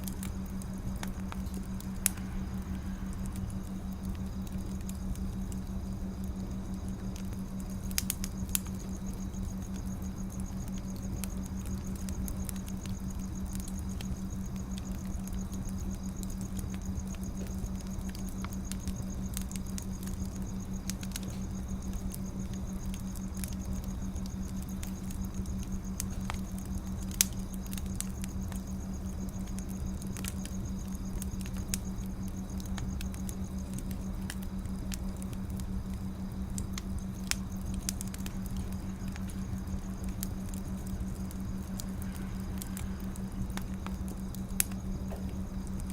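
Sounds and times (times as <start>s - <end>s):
low rumble and hum: 0.0s - 45.9s
wood fire crackling: 0.0s - 45.9s.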